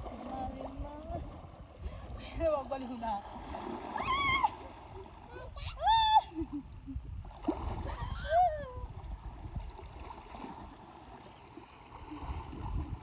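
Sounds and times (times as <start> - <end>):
river water splashing: 0.0 - 13.0
high-pitched voice cry: 5.3 - 6.3.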